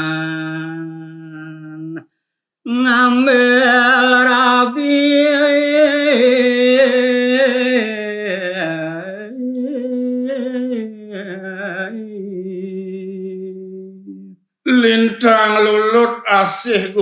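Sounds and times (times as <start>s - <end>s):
man singing unaccompanied: 0.0s - 2.1s, 2.7s - 17.0s.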